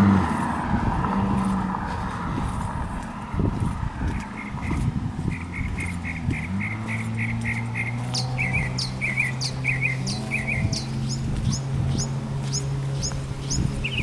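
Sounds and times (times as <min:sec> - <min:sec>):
soft footsteps: 0:00.3 - 0:08.4, 0:10.9 - 0:13.8
songbirds singing: 0:04.0 - 0:14.0.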